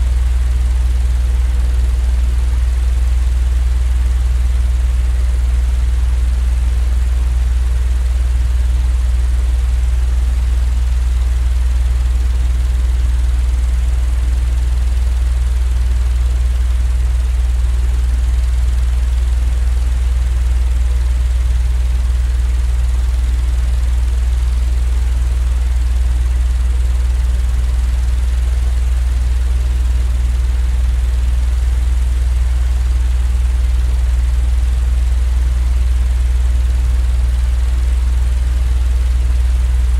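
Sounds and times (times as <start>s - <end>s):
low rumbling white-noise drone: 23.4s - 31.9s.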